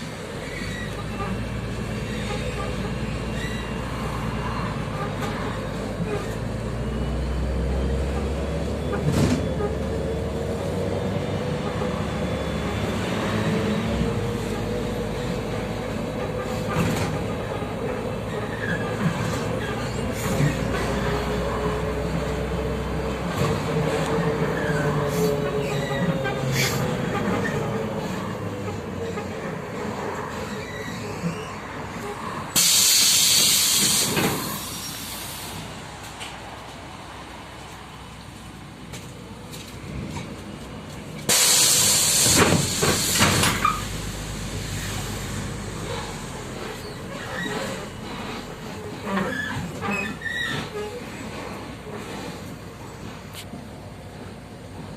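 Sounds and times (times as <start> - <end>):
bus running and road noise: 0.0 - 54.9
compressed air hiss: 32.6 - 35.6, 41.3 - 44.0.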